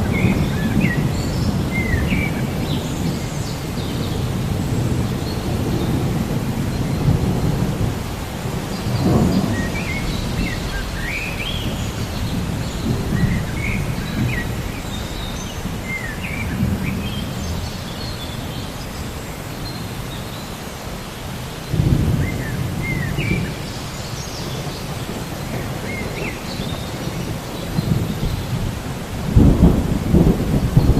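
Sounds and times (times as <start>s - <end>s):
thunder rumbling: 0.0s - 18.6s, 21.7s - 30.9s
birds chirping: 0.0s - 30.9s
rain falling: 0.0s - 30.9s.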